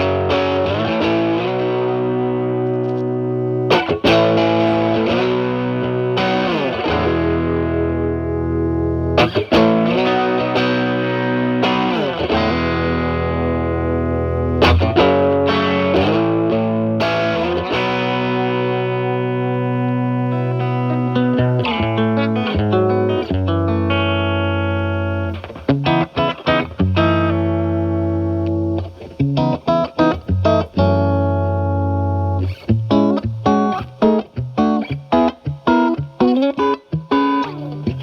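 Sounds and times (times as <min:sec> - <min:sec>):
overdriven electric guitar chords: 0:00.0 - 0:38.0.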